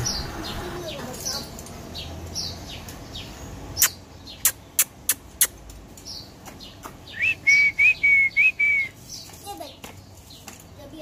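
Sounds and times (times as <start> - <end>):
birds chirping: 0.0 - 11.0
whistled bird notes: 7.1 - 9.3.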